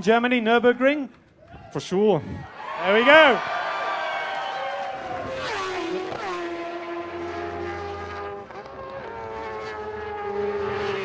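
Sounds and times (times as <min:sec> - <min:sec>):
motorcycle engines at high revs: 0:04.9 - 0:11.0.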